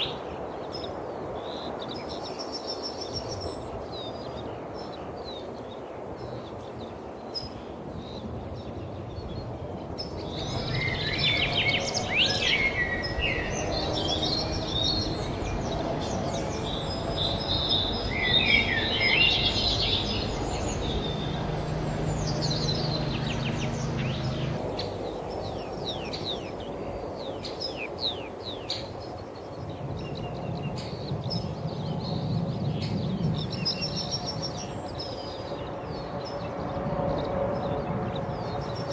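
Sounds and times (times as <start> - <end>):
wild birds singing: 0.0 - 38.9
steady low hum: 9.5 - 28.5.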